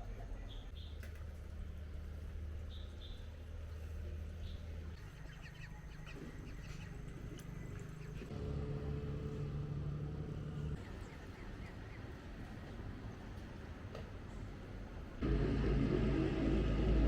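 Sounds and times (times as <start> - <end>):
birds chirping: 2.6 - 8.3
motor engine humming: 6.2 - 10.8, 15.2 - 17.0.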